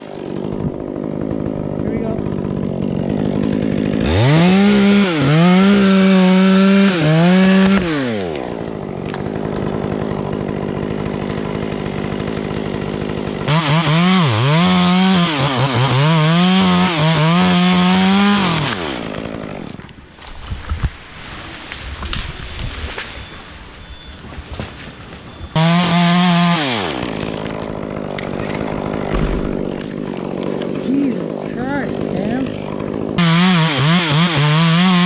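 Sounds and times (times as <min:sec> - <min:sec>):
chainsaw cutting wood: 0:00.0 - 0:35.0.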